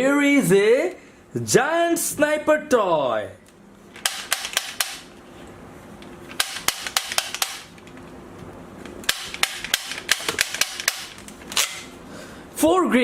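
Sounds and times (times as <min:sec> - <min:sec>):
plastic toy rifle clicks: 0:04.0 - 0:05.1, 0:06.3 - 0:07.7, 0:09.1 - 0:11.8.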